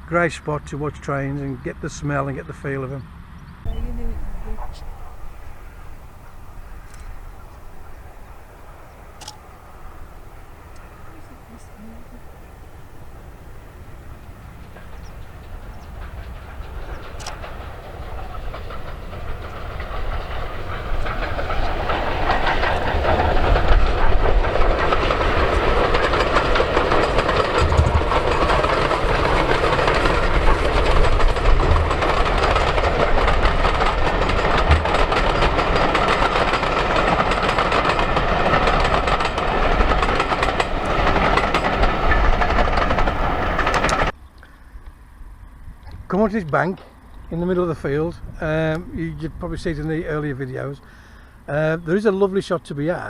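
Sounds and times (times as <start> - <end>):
steam train passing: 0.0 - 44.2, 47.4 - 53.0
train wheels clattering on track: 3.6 - 44.2.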